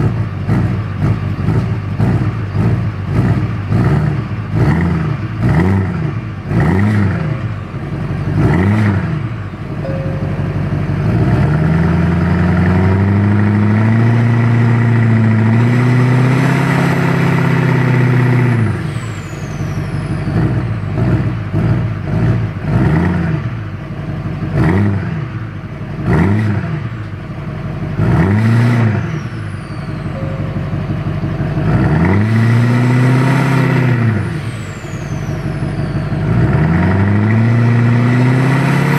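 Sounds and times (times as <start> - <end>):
diesel engine revving: 0.0 - 38.9
turbo whistle falling: 29.7 - 31.0.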